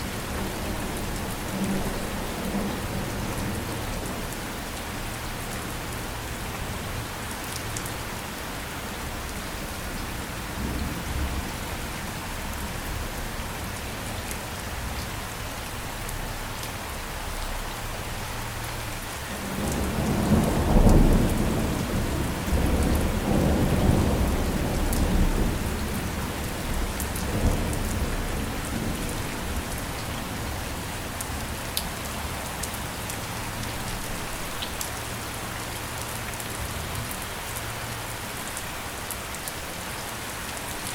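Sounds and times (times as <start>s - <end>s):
steady rain: 0.0s - 40.9s
rolling thunder: 19.4s - 30.6s.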